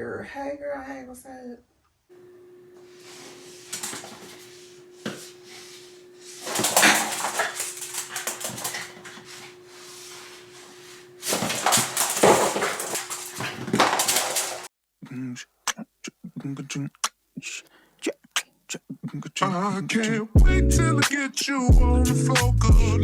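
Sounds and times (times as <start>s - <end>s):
faint steady hum: 2.1s - 14.7s
dog making noises: 3.1s - 14.7s.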